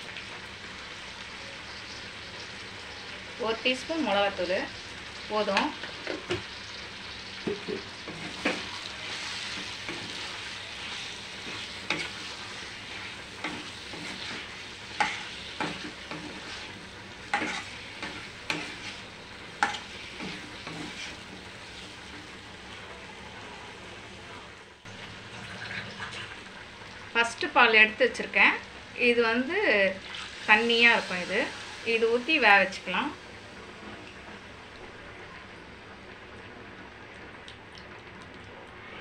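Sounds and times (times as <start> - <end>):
vegetables sizzling in a pan: 0.0 - 37.4
ladle scraping and knocking pan: 10.9 - 16.7, 17.3 - 19.0.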